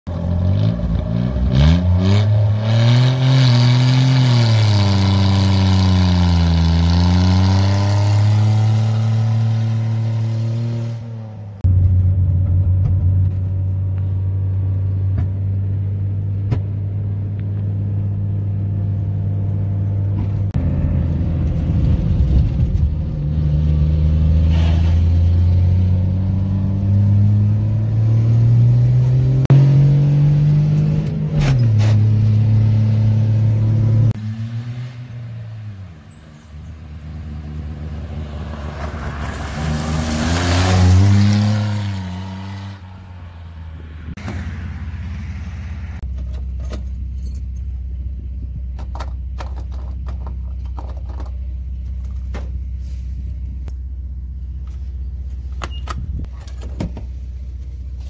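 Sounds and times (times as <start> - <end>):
car engine revving: 0.1 - 46.1.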